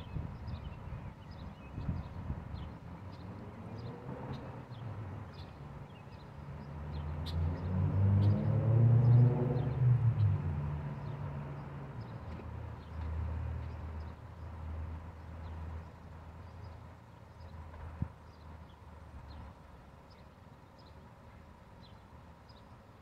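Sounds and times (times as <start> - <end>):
vehicle engine revving: 6.8 - 11.7.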